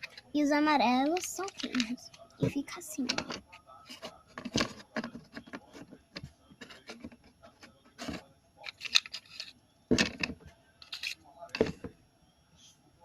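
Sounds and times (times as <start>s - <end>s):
plastic toy pieces clicking: 1.0s - 2.0s, 3.0s - 5.5s, 8.0s - 11.8s.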